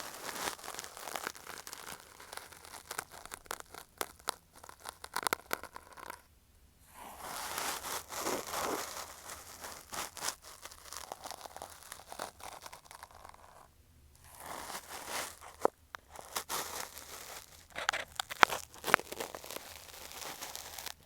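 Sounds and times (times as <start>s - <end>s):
cotton swab scratching microphone: 6.9s - 21.0s.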